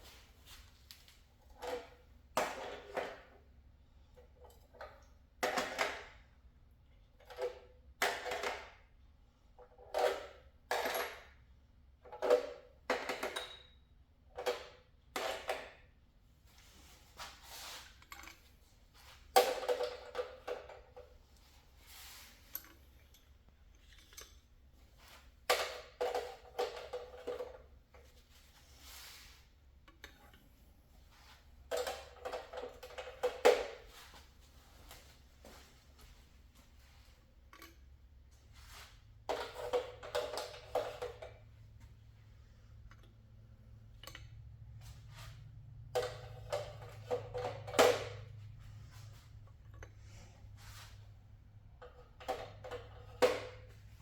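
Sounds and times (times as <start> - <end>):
metal engine parts clinking: 22.3 - 24.7.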